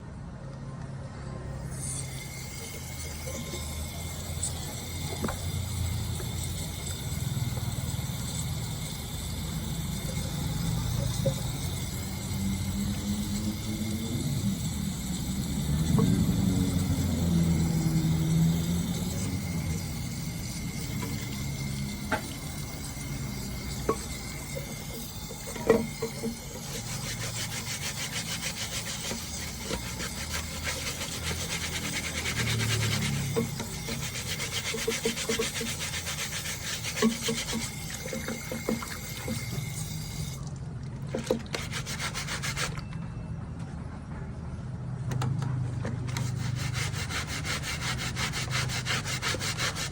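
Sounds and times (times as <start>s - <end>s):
rubbing strokes on a screen: 16.3s - 39.6s, 41.4s - 42.8s, 46.1s - 49.9s.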